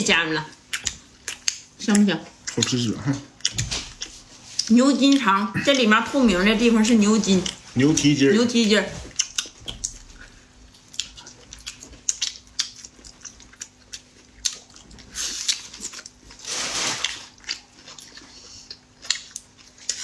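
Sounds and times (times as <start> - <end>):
person chewing food: 0.5 - 20.0
rustling: 16.4 - 17.3.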